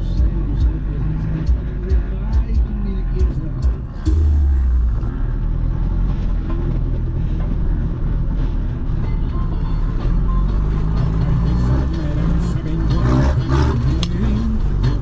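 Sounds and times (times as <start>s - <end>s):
music playing: 0.0s - 15.0s
vehicle engine rumbling: 0.0s - 15.0s.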